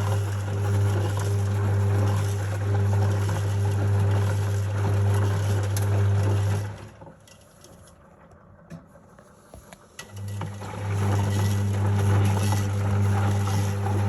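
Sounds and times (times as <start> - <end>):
washing machine motor hum: 0.0 - 7.2, 10.0 - 14.0.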